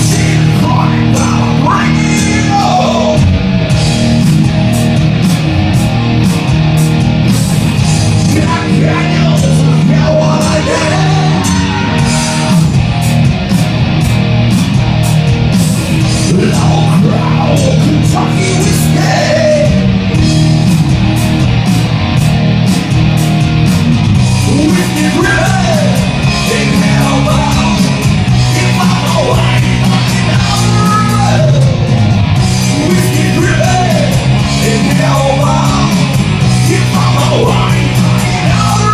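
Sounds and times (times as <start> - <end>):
person singing: 0.0 - 3.3, 8.2 - 12.8, 16.2 - 19.9, 24.4 - 31.9, 32.7 - 38.9
live rock band playing: 0.0 - 38.9.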